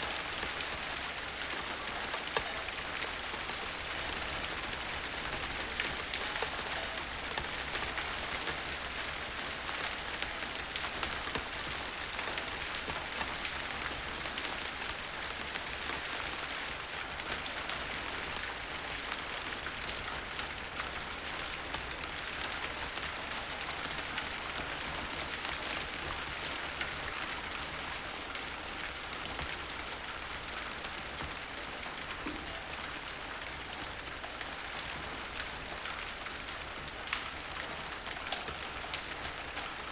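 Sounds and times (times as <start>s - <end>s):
heavy rain falling: 0.0s - 39.9s
raindrops ticking: 0.1s - 15.9s.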